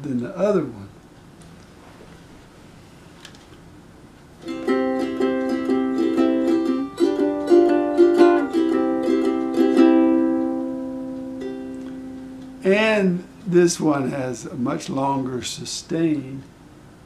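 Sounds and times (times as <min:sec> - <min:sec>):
ukulele strumming chords: 0:04.4 - 0:14.2.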